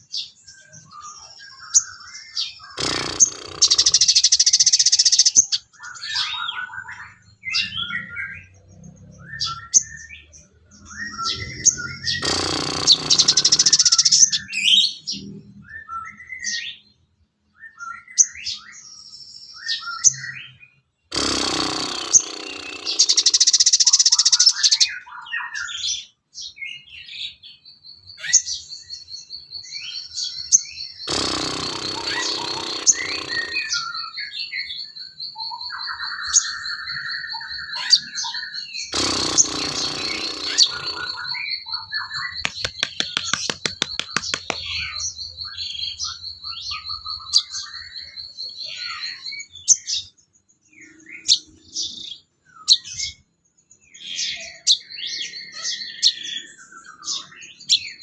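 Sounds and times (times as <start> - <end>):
harsh bird chattering: 2.6 - 6.9, 10.7 - 15.1, 21.1 - 25.0, 31.0 - 34.2, 38.9 - 46.1
high pulsing bird trill: 10.8 - 14.6, 21.2 - 24.9, 31.0 - 34.2, 38.9 - 44.9.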